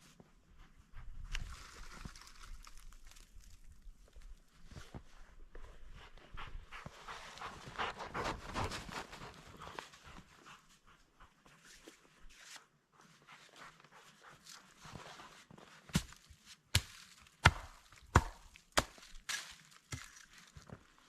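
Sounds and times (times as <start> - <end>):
rustling: 1.3 - 5.1.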